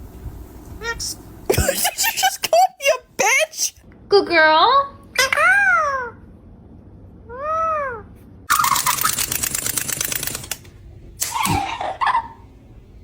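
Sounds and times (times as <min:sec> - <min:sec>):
parrot clicking rattle: 0:08.5 - 0:10.7.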